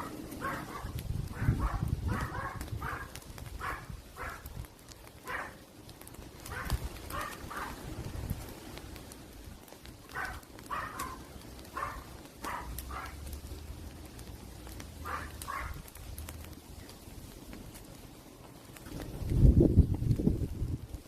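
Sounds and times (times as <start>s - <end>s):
animal calling: 0.0s - 4.5s, 5.2s - 5.6s, 6.5s - 7.8s, 10.1s - 13.3s, 15.0s - 15.8s
fire crackling and popping: 0.0s - 21.0s.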